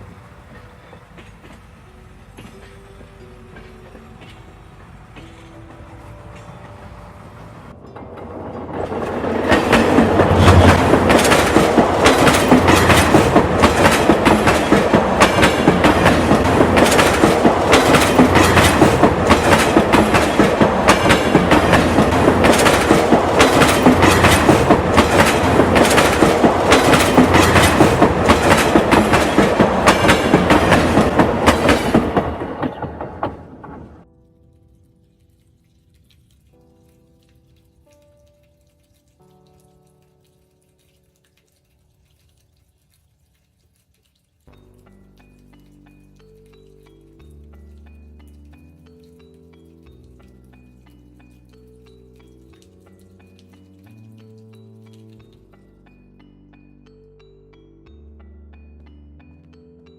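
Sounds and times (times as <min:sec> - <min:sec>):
train wheels clattering on rails: 0:00.0 - 0:34.0.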